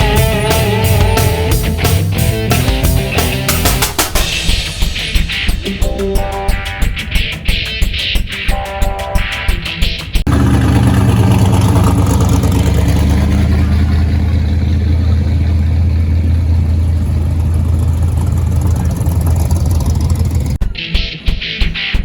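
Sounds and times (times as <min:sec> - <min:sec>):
car engine idling: 0:00.0 - 0:04.0, 0:10.2 - 0:20.6.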